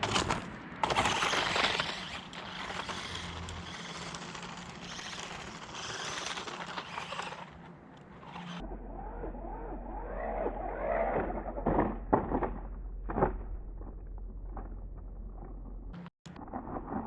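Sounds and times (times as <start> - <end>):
wheels and chassis knocking: 0.0 - 8.4, 11.2 - 16.1
small electric motor whining: 0.8 - 11.1.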